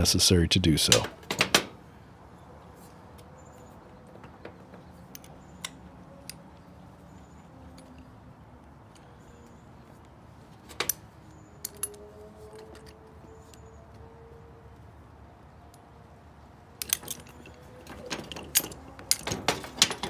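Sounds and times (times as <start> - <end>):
wrench clinking on brass fittings: 16.8 - 20.0.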